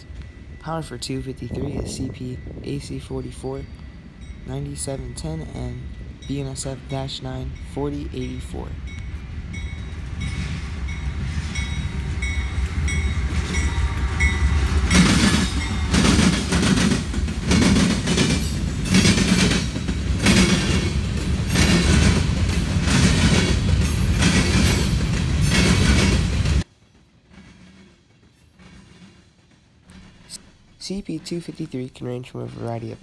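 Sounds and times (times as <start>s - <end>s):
freight train rumble: 0.0s - 33.0s
wheels clacking over rail joints: 9.0s - 33.0s.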